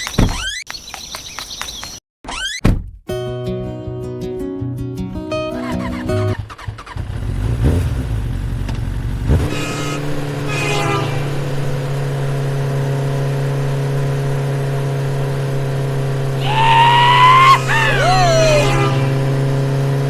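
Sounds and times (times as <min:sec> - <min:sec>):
vehicle engine revving: 0:05.6 - 0:20.0.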